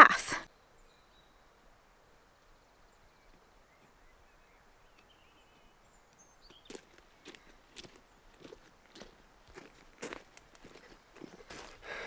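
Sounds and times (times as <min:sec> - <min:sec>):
soft crunch: 0:06.6 - 0:11.9.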